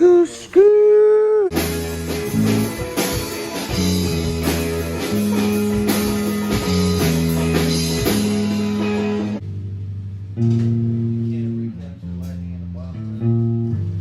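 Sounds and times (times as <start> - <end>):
rock music with guitar and drums: 1.5 - 9.4.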